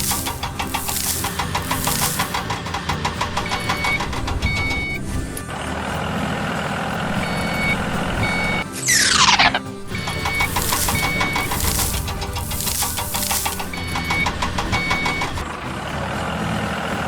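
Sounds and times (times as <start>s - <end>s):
vehicle engine running: 0.0s - 17.0s
reversing beeps: 3.4s - 5.1s, 7.2s - 15.4s.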